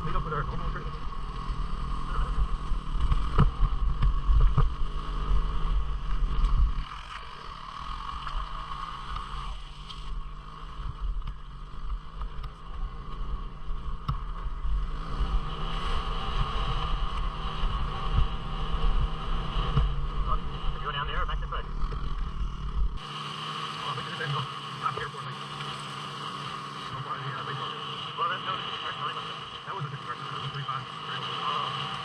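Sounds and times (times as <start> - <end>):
wind rumble on microphone: 0.0 - 7.1, 7.9 - 23.0
motorcycle engine running: 0.0 - 32.0.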